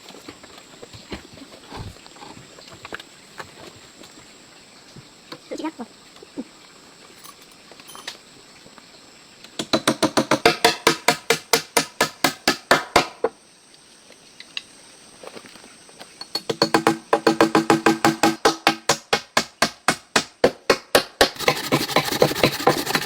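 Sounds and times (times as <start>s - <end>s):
rapid hollow wooden knocks: 9.6s - 13.3s, 16.4s - 23.0s.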